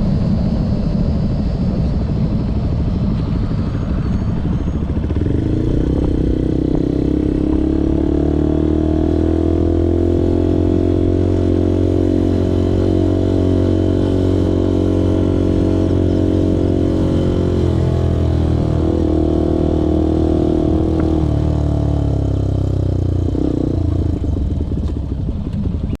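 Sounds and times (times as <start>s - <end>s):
motorcycle engine while riding: 0.0s - 26.0s.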